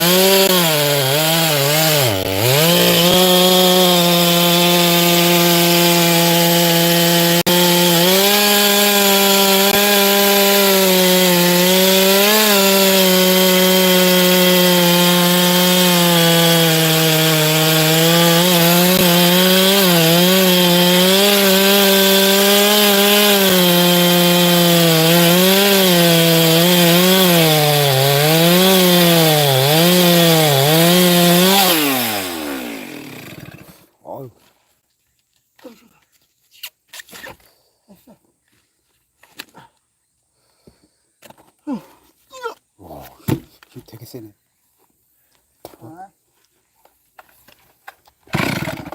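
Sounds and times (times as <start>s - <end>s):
chainsaw cutting wood: 0.0s - 33.9s, 48.1s - 48.9s.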